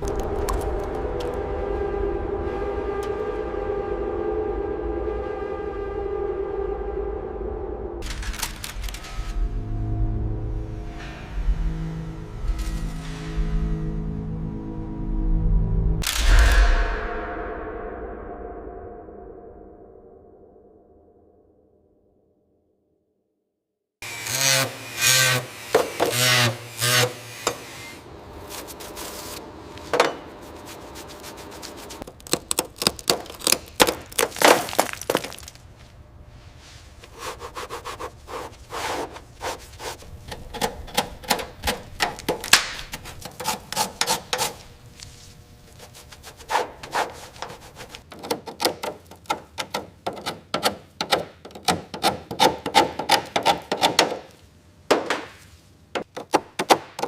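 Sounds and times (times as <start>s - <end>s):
scraping and knocking strokes: 24.4s - 35.5s, 36.6s - 54.4s.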